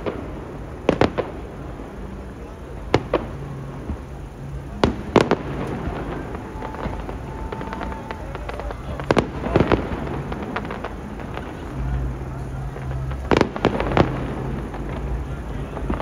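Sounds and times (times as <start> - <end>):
firework crackling: 0.0 - 16.0
distant firework shell bursts: 4.8 - 12.1.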